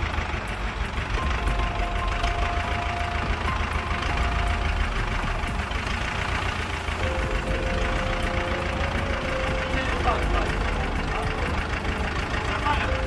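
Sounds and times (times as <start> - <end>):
heavy vehicle engine rumbling: 0.0 - 13.0.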